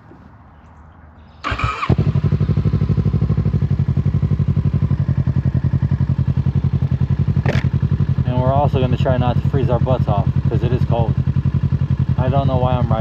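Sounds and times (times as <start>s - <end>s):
electric starter whirring: 1.4s - 2.2s
motorcycle engine idling: 1.4s - 13.0s.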